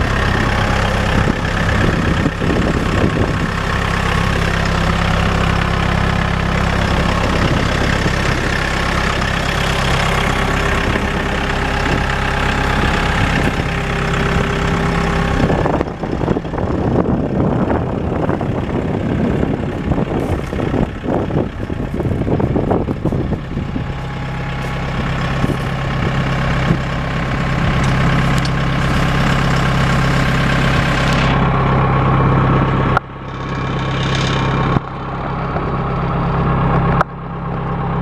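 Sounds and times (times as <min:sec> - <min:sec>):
diesel tractor engine idling: 0:00.0 - 0:38.0.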